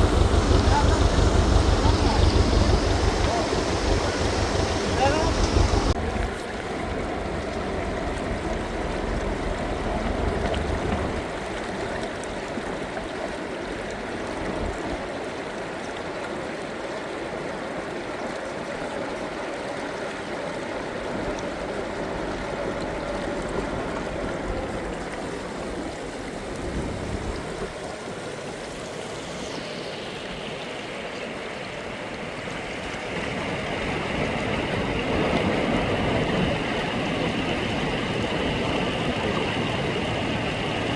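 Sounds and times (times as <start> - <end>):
low rumble: 0.0 - 11.4, 21.5 - 27.8
river water flowing: 0.0 - 40.9.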